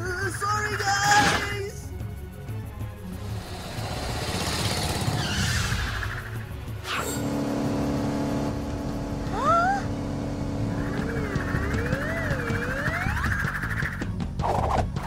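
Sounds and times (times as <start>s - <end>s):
cartoon sports car engine: 6.8s - 13.2s.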